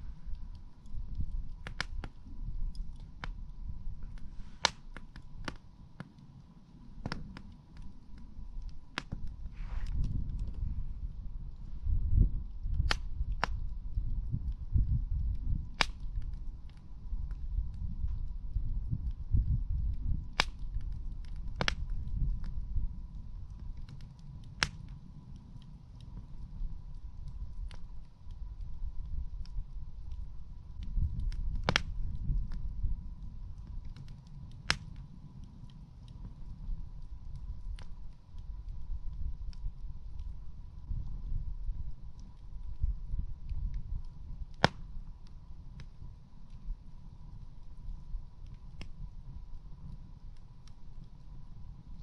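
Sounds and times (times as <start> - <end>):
campfire crackling and popping: 0.0 - 52.0
low rumble: 0.0 - 52.0
loud sharp pops of fire: 1.2 - 3.4, 4.0 - 10.6, 12.7 - 13.6, 15.4 - 17.8, 20.0 - 22.6, 23.4 - 28.1, 30.8 - 32.6, 33.5 - 36.6, 44.0 - 45.1.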